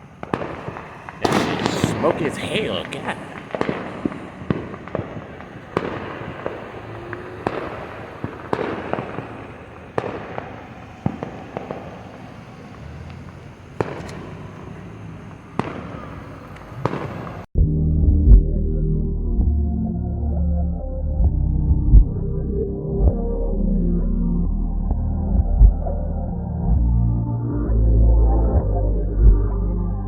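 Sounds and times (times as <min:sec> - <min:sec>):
fireworks bangs: 0:00.0 - 0:17.5
rumble and hiss of fireworks: 0:00.0 - 0:17.5.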